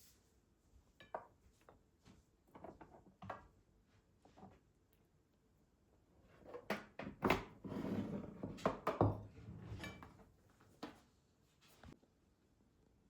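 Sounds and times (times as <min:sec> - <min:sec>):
objects knocking and thunking: 0:06.5 - 0:11.0.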